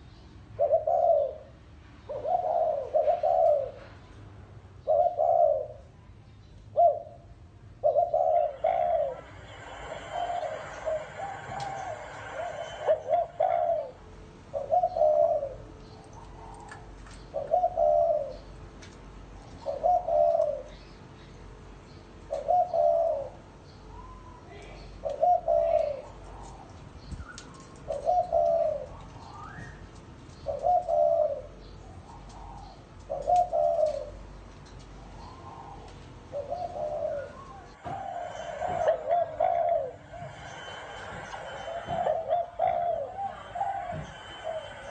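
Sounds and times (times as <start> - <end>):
dove cooing: 0.6 - 4.0, 4.8 - 5.9, 6.7 - 18.6, 19.4 - 20.9, 22.2 - 44.9
small birds chirping: 14.6 - 38.5.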